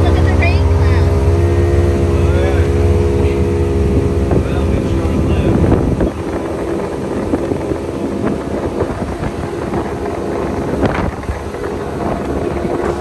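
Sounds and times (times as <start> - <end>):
motorboat engine running: 0.0 - 13.0
wind buffeting microphone: 0.0 - 13.0.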